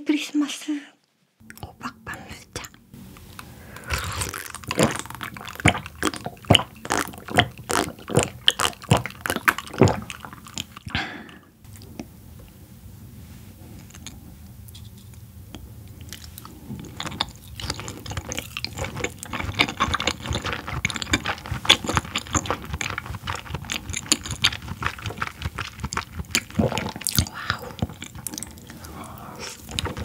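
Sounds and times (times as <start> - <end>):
wet chewing smacks: 3.4 - 12.1, 16.0 - 30.0.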